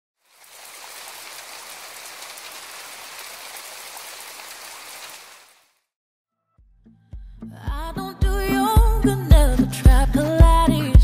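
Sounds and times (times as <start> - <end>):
rain pattering: 0.2 - 5.8.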